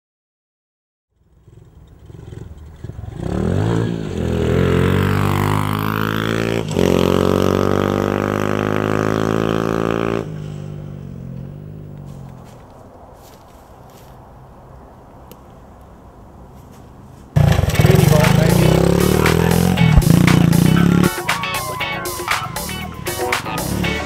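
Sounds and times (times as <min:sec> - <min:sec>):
small motorcycle engine revving: 0:01.2 - 0:12.6, 0:17.4 - 0:21.2.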